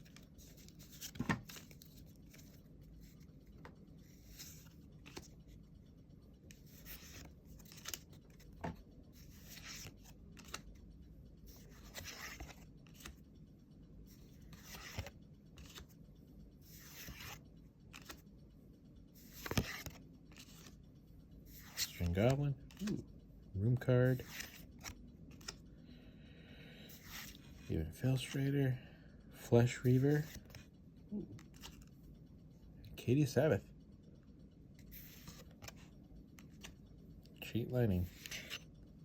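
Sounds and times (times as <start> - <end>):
cards and wrapper rustling: 6.5 - 10.7, 11.6 - 13.2.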